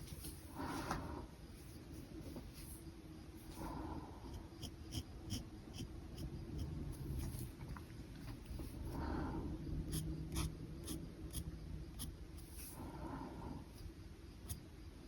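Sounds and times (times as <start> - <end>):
pen scratching on paper: 4.6 - 6.7, 9.9 - 12.7.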